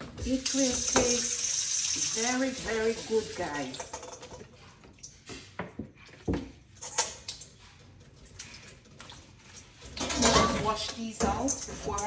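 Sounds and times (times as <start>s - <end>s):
dishes and utensils clinking: 9.5s - 12.0s.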